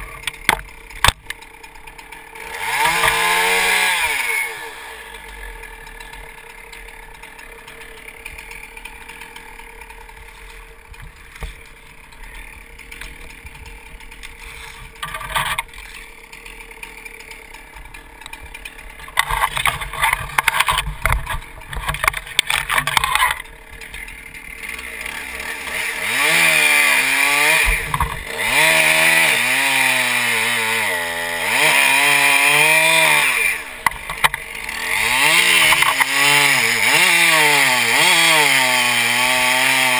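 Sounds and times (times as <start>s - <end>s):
chainsaw idling and revving: 0.0s - 39.9s
loud rough crackling noise: 0.0s - 39.9s.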